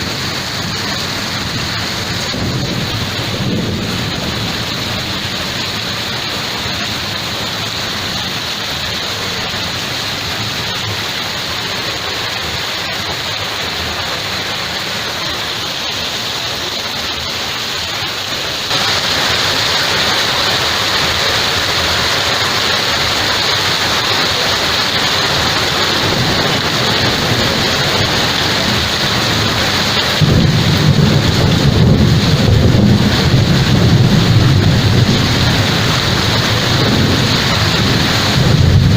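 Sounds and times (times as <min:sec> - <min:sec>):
low rumble of thunder: 0:00.0 - 0:07.3, 0:25.1 - 0:38.9
heavy rain falling: 0:00.0 - 0:38.9.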